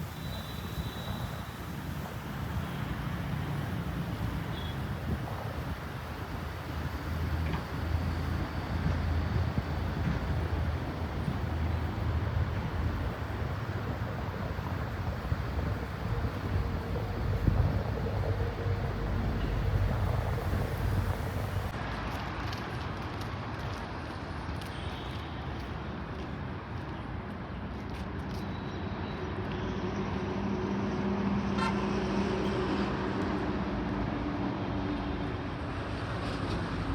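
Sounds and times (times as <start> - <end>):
jet engines rumbling: 0.0 - 21.8
wind buffeting microphone: 3.6 - 21.8.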